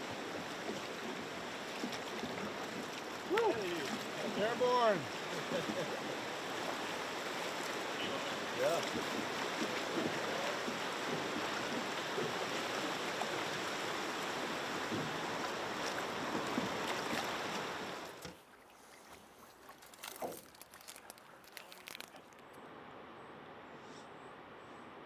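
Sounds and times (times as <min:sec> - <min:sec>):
rushing river water: 0:00.0 - 0:22.1.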